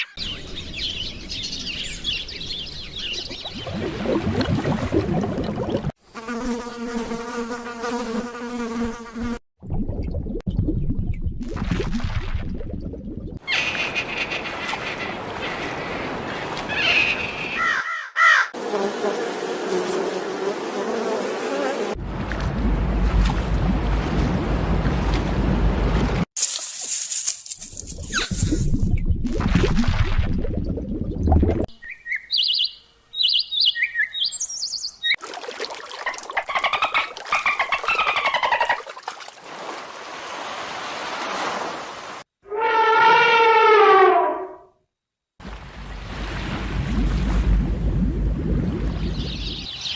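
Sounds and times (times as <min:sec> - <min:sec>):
insects buzzing: 0:06.0 - 0:09.4, 0:18.6 - 0:22.0
chirping calls: 0:13.4 - 0:18.5, 0:31.7 - 0:35.2
high bird chirps: 0:31.7 - 0:35.2, 0:49.1 - 0:49.9.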